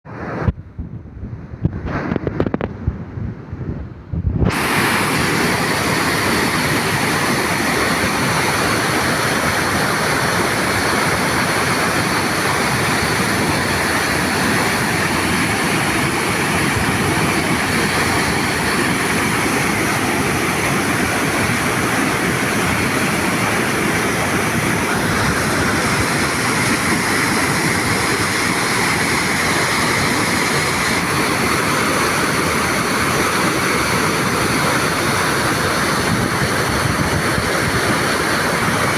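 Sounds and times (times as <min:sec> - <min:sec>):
low rumbles: 0:00.1 - 0:04.5
hot spring water rushing: 0:04.5 - 0:38.9.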